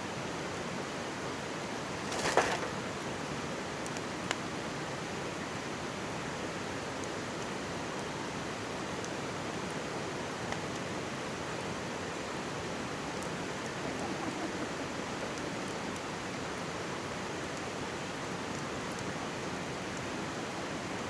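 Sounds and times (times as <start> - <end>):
faint campfire crackles: 0.1 - 21.0
stream babbling: 10.8 - 20.9.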